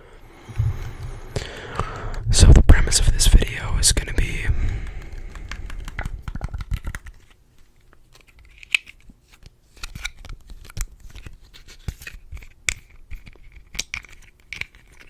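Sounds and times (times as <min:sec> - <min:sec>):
crisp taps and clicks: 0:04.5 - 0:07.3.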